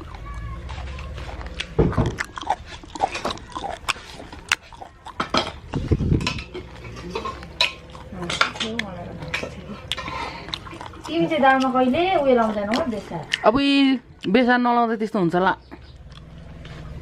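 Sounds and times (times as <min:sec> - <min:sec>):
chewing and mouth sounds: 0:00.0 - 0:14.5, 0:15.6 - 0:17.0
plates and cutlery clinking: 0:04.9 - 0:10.5.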